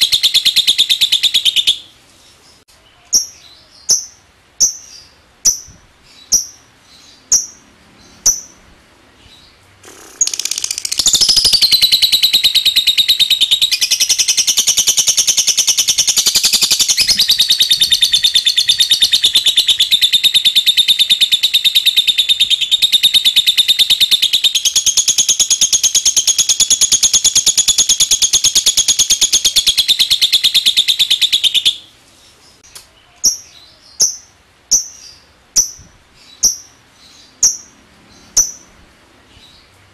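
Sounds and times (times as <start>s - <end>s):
bird rattling trill: 9.8s - 31.4s.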